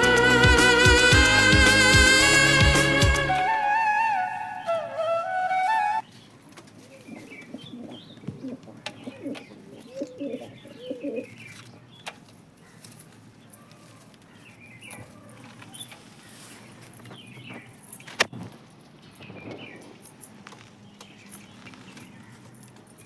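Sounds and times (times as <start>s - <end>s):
small birds chirping: 6.0s - 18.3s
pigeons cooing: 6.8s - 11.3s.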